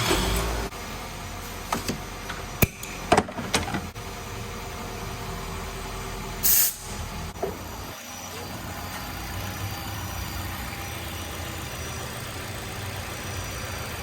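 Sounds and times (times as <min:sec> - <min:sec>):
loud hiss: 0:06.4 - 0:07.0.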